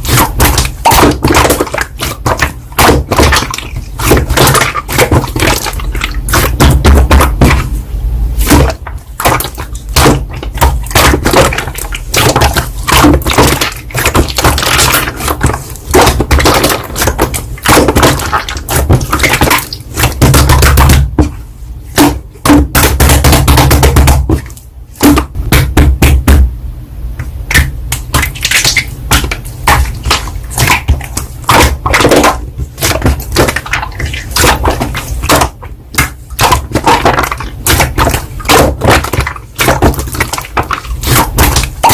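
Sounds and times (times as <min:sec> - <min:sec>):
slime crackling and popping: 0:27.5 - 0:41.9.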